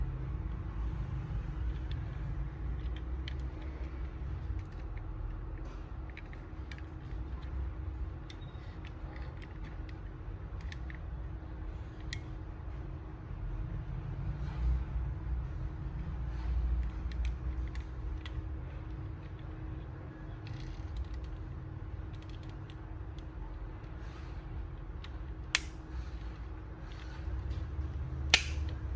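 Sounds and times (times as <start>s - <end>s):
low rumble and hum: 0.0s - 28.9s
model car clicks and creaks: 2.7s - 7.6s, 20.3s - 21.4s, 22.0s - 23.3s.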